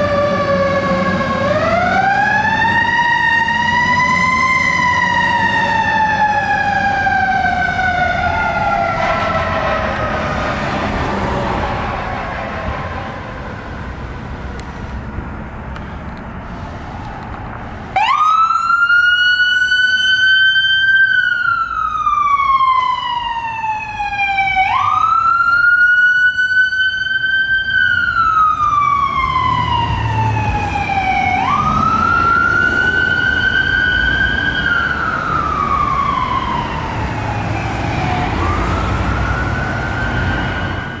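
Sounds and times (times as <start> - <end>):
fire truck siren wailing: 0.0 - 14.8, 17.9 - 41.0
road noise: 0.0 - 41.0
truck engine rumble: 0.0 - 41.0
faint falling siren tone: 18.1 - 41.0.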